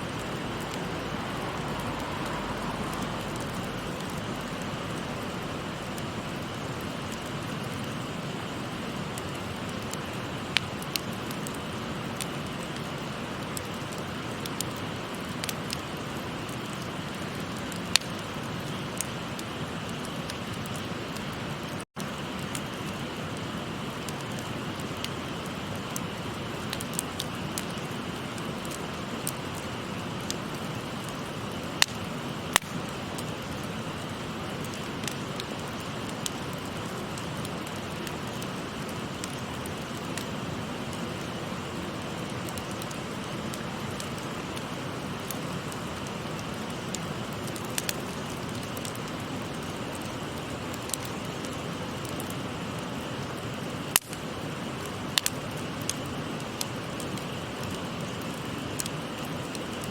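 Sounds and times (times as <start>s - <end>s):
river babbling: 0.0s - 6.8s
wood fire crackling: 0.0s - 59.9s.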